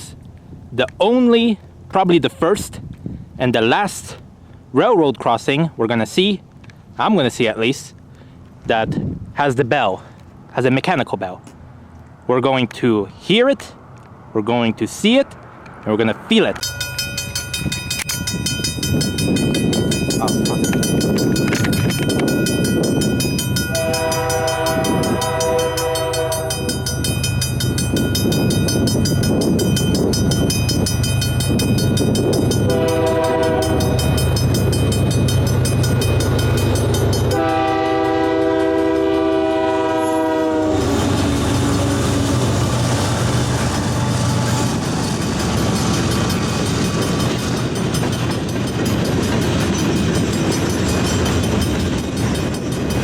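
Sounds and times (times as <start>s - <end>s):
diesel engines rumbling: 0.0s - 53.0s
crossing bell ringing: 16.4s - 53.0s
train wheels clattering: 16.6s - 39.3s, 40.9s - 53.0s
locomotive horn blasts: 23.6s - 27.0s, 32.4s - 34.5s, 37.1s - 42.6s.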